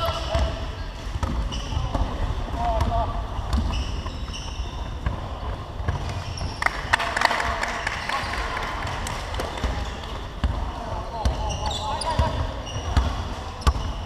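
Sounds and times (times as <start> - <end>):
shoe squeaks: 0.0 - 2.8, 3.4 - 6.6, 11.1 - 14.0
basketball bouncing: 0.2 - 4.2.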